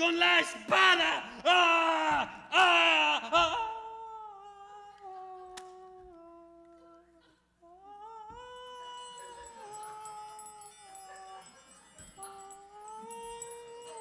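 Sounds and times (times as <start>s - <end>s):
person humming a slow tune: 3.5s - 11.5s, 12.1s - 14.0s.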